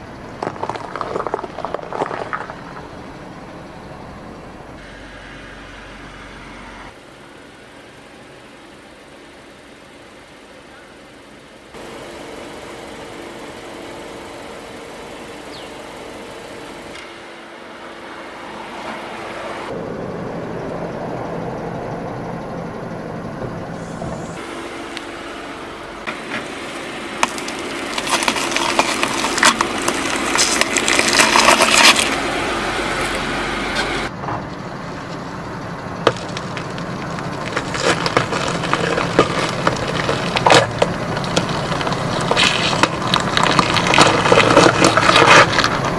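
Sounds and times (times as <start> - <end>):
car engine running slowly: 0.0 - 45.9
tyre crushing brittle objects: 0.4 - 2.9, 26.1 - 33.2, 36.0 - 45.9.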